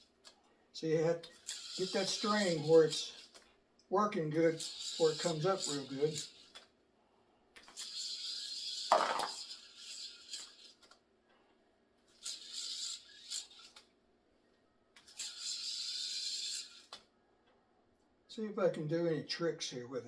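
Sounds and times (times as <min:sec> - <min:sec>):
spinning yo-yo hiss: 0:01.2 - 0:03.4, 0:04.3 - 0:06.7, 0:07.6 - 0:10.9, 0:12.1 - 0:13.8, 0:15.0 - 0:17.0.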